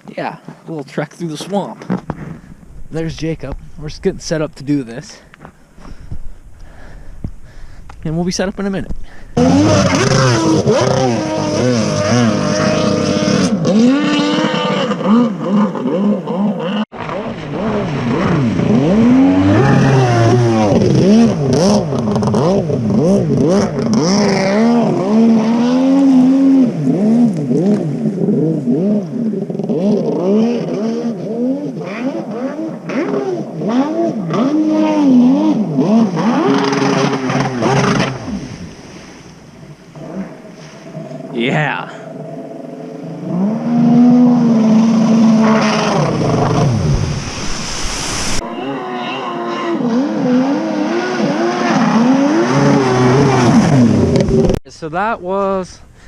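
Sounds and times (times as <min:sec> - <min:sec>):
jet ski engine revving: 0:09.3 - 0:47.7, 0:48.4 - 0:54.6.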